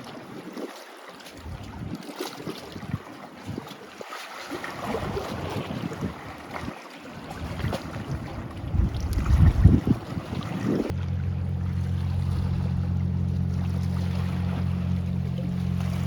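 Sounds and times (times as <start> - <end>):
wind buffeting microphone: 1.4 - 3.7, 4.8 - 11.2
low engine hum: 7.2 - 16.0.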